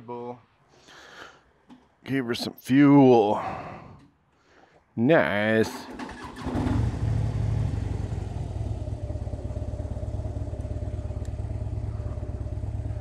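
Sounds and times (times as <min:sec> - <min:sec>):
motorcycle engine idling: 0:06.4 - 0:13.0.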